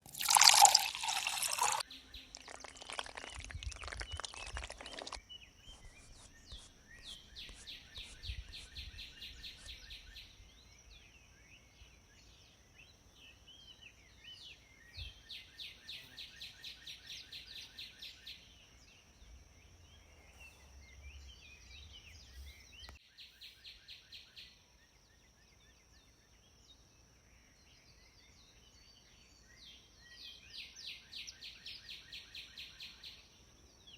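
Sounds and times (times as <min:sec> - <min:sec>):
bird chirps: 0:00.2 - 0:11.0.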